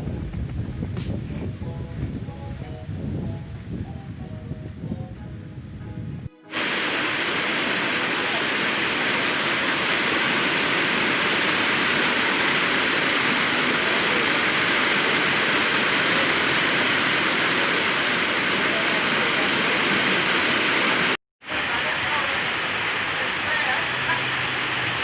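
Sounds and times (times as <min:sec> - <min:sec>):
loud rushing hiss: 0:06.5 - 0:25.0.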